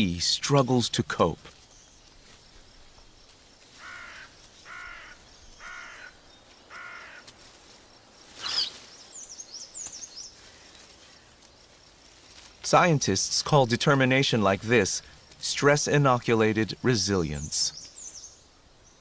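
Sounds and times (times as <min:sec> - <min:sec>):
harsh cawing calls: 0:03.8 - 0:07.3
small bird chirping: 0:08.2 - 0:11.7, 0:16.7 - 0:19.0.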